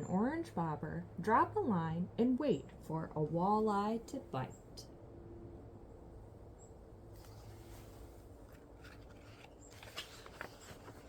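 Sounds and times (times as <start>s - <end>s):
faint steady hum: 0.0s - 11.0s
soft clicks and rustles: 7.1s - 11.0s.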